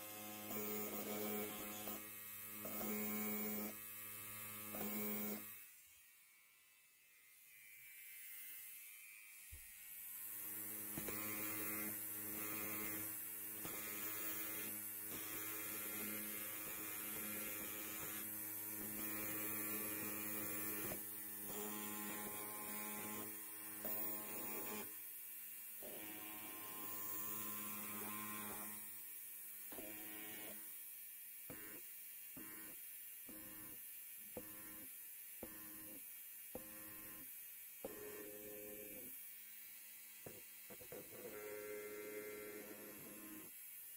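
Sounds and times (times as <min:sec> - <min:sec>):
electric hair clipper buzzing: 0:00.0 - 0:30.8, 0:31.5 - 0:43.8.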